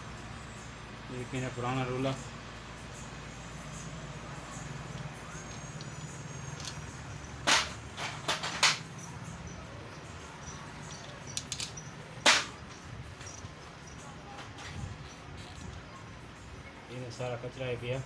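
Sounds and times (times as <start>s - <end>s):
engine parts knocking: 4.8s - 9.3s.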